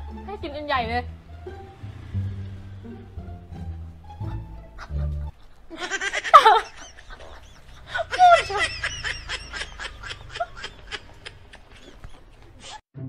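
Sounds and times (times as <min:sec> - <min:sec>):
person laughing: 0:04.2 - 0:12.8.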